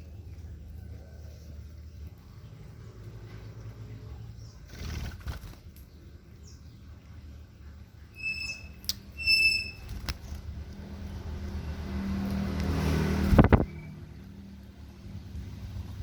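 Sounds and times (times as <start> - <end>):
shrill bird chirps: 8.0 - 10.0, 13.6 - 14.0
motor vehicle passing: 9.6 - 16.0.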